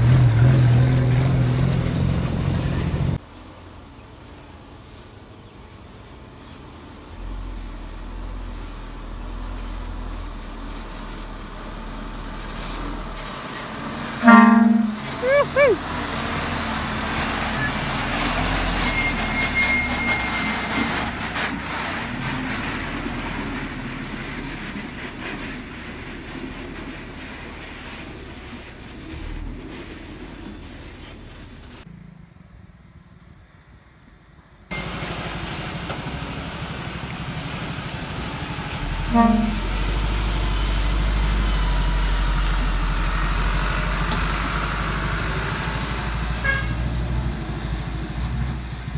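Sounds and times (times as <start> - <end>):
diesel truck engine labouring: 0.0 - 3.2, 6.2 - 31.9, 34.7 - 48.9
horn toot: 14.2 - 15.8, 39.1 - 39.8, 46.4 - 46.9
thin high squeal: 14.2 - 15.8, 18.7 - 20.7
diesel truck engine running: 34.7 - 48.9.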